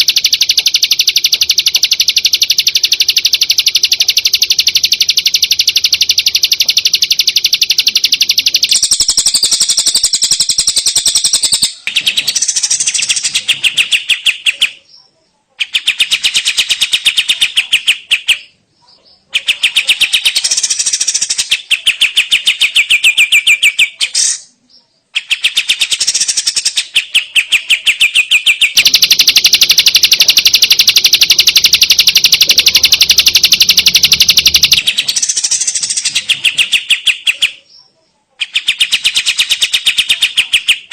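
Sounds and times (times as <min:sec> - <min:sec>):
shrike singing chattering song: 0:00.0 - 0:14.9, 0:19.2 - 0:37.7.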